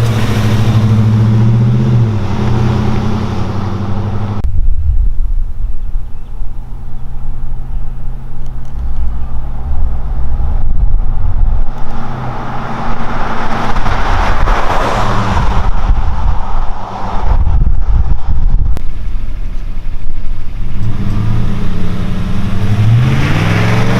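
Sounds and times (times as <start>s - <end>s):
truck exhaust drone: 0.0s - 14.5s
rushing noise: 8.8s - 23.9s.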